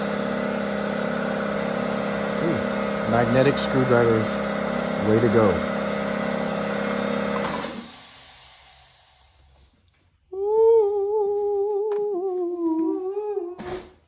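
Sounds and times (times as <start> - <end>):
steady mechanical drone: 0.0 - 7.6
person humming: 10.3 - 13.8.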